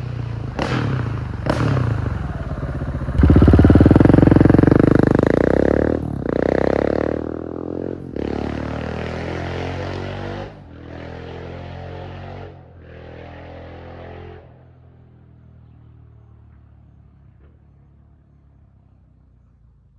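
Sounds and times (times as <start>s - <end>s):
motorcycle engine accelerating: 0.0s - 14.5s.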